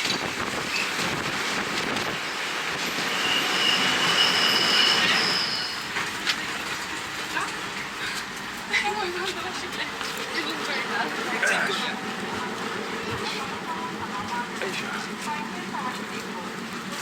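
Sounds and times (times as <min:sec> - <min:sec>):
train running on rails: 0:00.0 - 0:17.0
high wheel squeal: 0:02.2 - 0:06.0.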